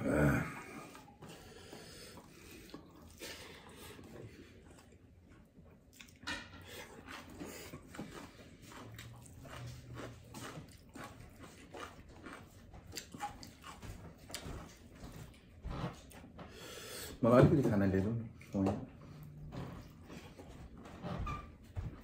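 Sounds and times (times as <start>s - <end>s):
chewing and wet mouth smacks: 0.8s - 16.3s, 18.4s - 20.7s
fingers working through food: 6.0s - 16.6s.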